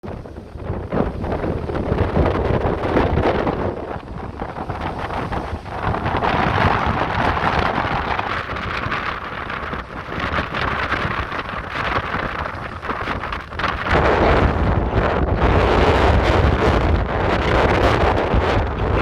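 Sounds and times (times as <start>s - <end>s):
surf crashing on rocks: 0.0s - 19.0s
wind buffeting microphone: 0.0s - 19.0s.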